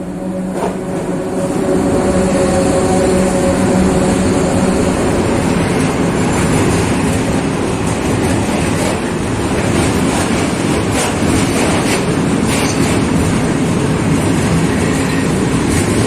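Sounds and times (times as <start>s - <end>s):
humming tone: 0.0s - 7.4s
freight train rolling past: 0.0s - 16.0s.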